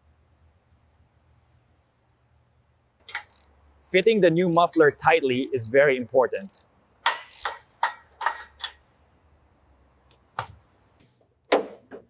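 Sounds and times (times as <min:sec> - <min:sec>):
tools clinking on exhaust: 0:03.0 - 0:04.8, 0:06.4 - 0:08.8.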